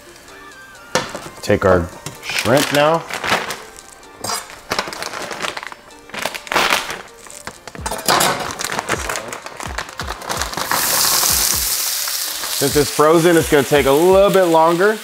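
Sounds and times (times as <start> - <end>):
background music with steady beat: 0.0 - 15.0
shrimp sizzling in hot fat: 0.0 - 15.0
plastic bag crinkling: 2.2 - 12.8.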